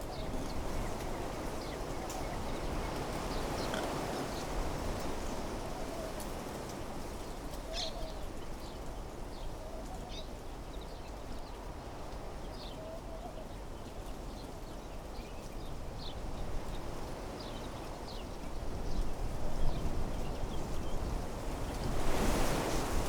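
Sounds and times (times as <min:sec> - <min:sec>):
birds chirping: 0:00.0 - 0:04.6
wind through trees: 0:00.0 - 0:23.0.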